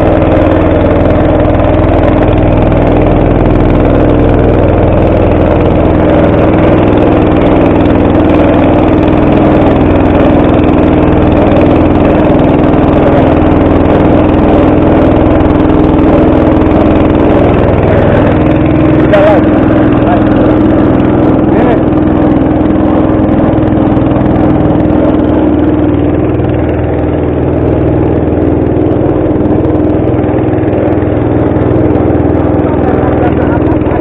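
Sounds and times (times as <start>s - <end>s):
boat engine running: 0.0s - 34.0s.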